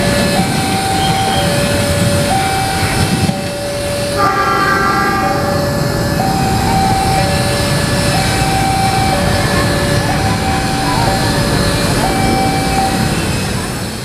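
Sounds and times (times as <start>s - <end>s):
train rumbling on rail: 0.0s - 14.0s
two-tone electronic warning signal: 0.0s - 14.0s.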